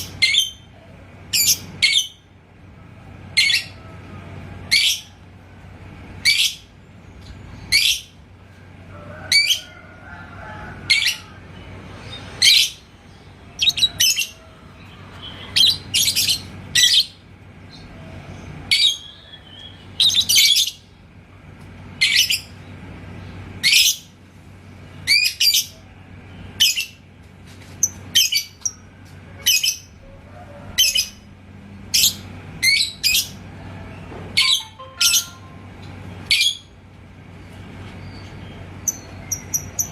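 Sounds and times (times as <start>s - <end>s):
lovebird shrill chirps: 13.6s - 14.3s.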